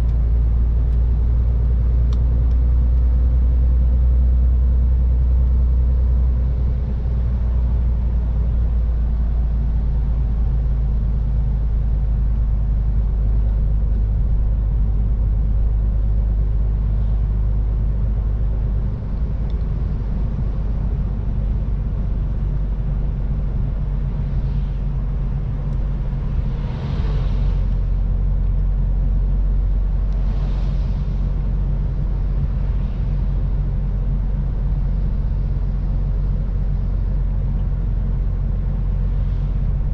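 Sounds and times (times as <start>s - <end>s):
road and tyre noise: 0.0s - 39.9s
truck diesel engine running: 0.0s - 39.9s
rushing noise: 24.0s - 33.7s.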